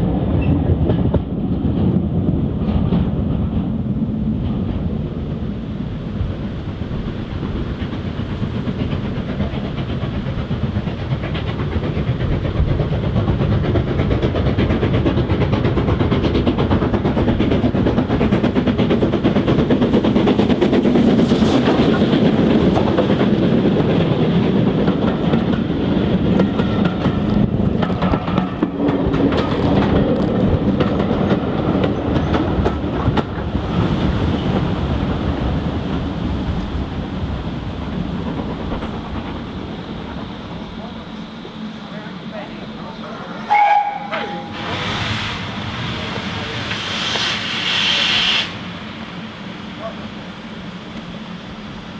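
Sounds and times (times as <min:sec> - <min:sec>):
steam train passing: 0:00.0 - 0:51.9
wheels clicking over rail joints: 0:06.9 - 0:34.7.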